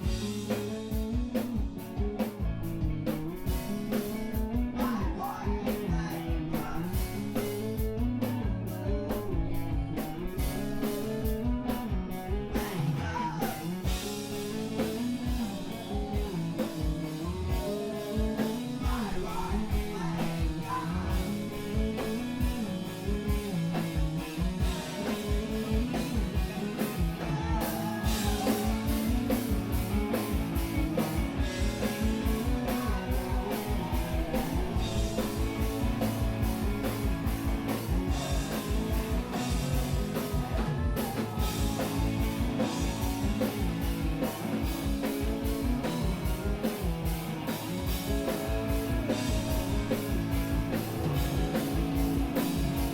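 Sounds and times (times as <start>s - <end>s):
drum kit: 0.0s - 52.9s
guitars: 0.0s - 52.9s
person singing: 4.7s - 7.1s, 12.5s - 13.8s, 17.2s - 21.7s, 26.8s - 29.2s, 31.6s - 35.8s, 38.1s - 44.3s, 48.2s - 51.8s.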